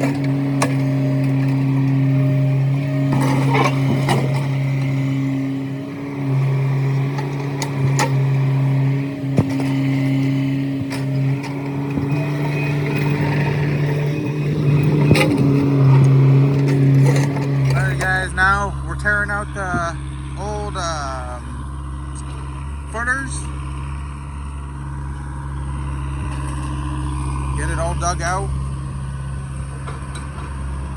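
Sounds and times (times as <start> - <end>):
concrete knocks and clanks: 0.0 - 18.2
heavy machine engine running: 0.0 - 30.9.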